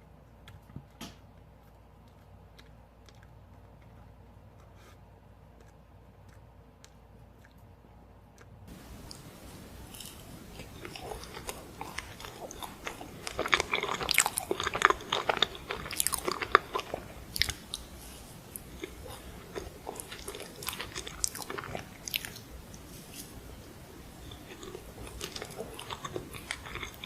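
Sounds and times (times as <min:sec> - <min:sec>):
person chewing crunchy ice cream: 0:00.2 - 0:27.0.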